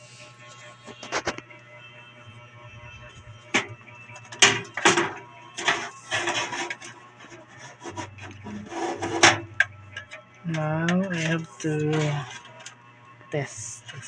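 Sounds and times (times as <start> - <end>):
parts rubbing and scraping: 0.5 - 1.4, 2.7 - 12.7.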